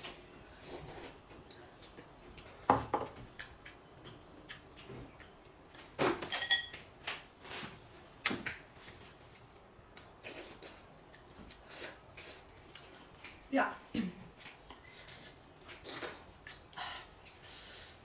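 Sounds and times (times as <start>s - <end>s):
tableware clinking and knocking: 6.2s - 6.8s.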